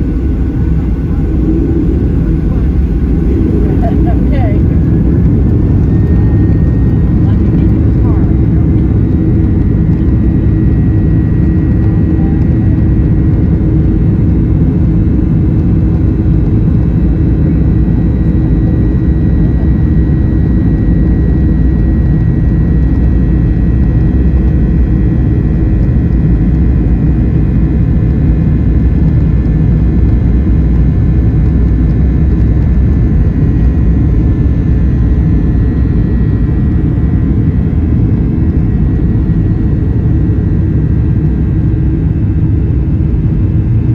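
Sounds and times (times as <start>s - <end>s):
faint high whine: 0.0s - 13.2s
jet engine roar in cabin: 0.0s - 43.9s.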